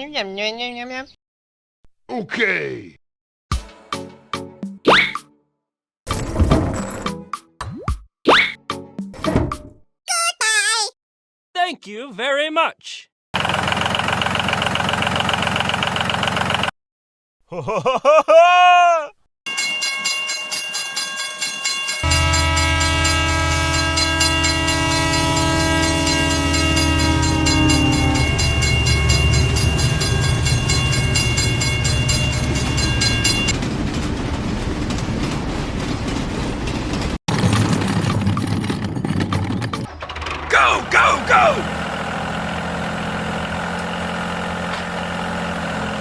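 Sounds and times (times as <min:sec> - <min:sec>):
train horn: 0:22.0 - 0:33.5.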